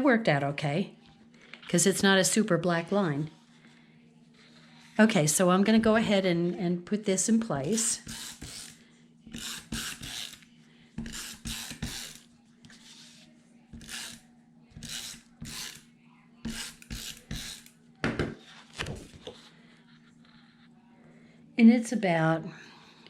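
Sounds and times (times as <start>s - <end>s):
faint steady hum: 0.0s - 23.0s
paper rasping on surface: 8.0s - 10.4s, 11.0s - 13.2s, 13.8s - 14.2s, 14.8s - 15.8s, 16.5s - 17.7s.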